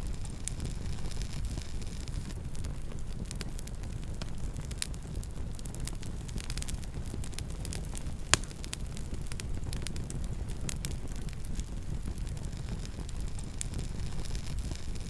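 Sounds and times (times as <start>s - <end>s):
campfire crackling: 0.0s - 15.0s
low steady rumble: 0.0s - 15.0s
loud fire pop: 7.2s - 8.9s.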